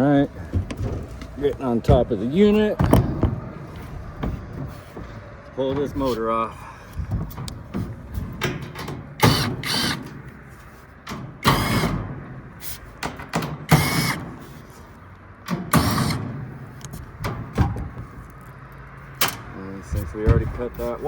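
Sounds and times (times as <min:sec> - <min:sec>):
metallic clicks and knocks: 0:06.9 - 0:10.3
power drill whirring: 0:09.2 - 0:10.1, 0:11.4 - 0:11.9, 0:13.7 - 0:14.2, 0:15.8 - 0:16.2.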